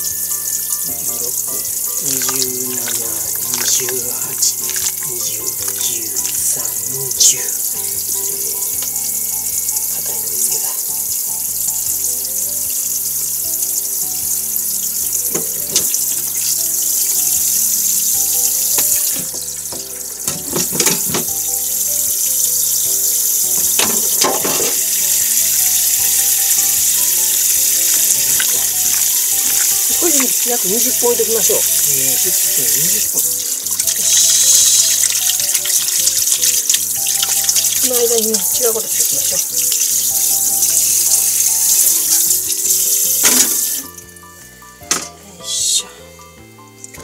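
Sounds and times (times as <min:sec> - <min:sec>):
soft background music: 0:00.0 - 0:47.0
wet squelching of meat: 0:02.0 - 0:06.8.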